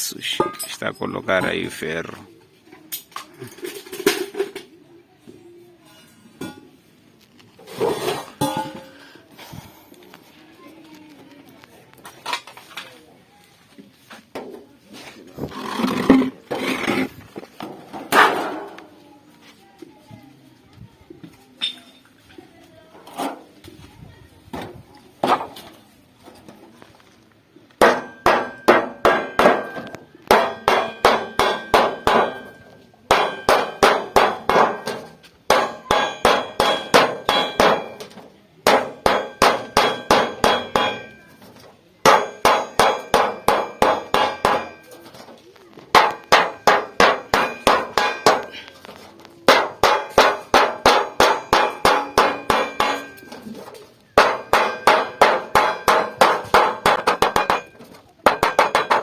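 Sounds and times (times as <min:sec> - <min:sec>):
hammer ringing on sheet steel: 0:27.8 - 0:38.0, 0:38.7 - 0:41.5, 0:42.1 - 0:45.1, 0:46.0 - 0:48.6, 0:49.5 - 0:53.4, 0:54.2 - 0:59.0.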